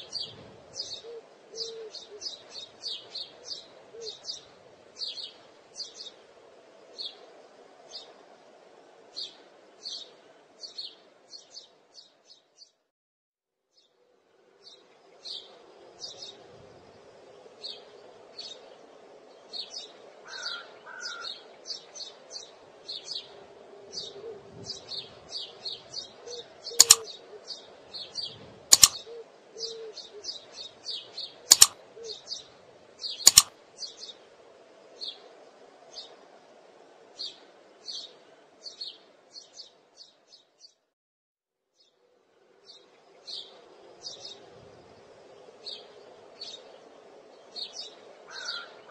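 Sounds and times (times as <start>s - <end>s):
small birds chirping: 0.0s - 6.3s, 17.6s - 23.4s, 24.0s - 34.2s, 45.5s - 48.9s
sharp clicks: 26.8s - 27.0s, 28.7s - 29.0s, 31.5s - 31.8s, 33.3s - 33.5s.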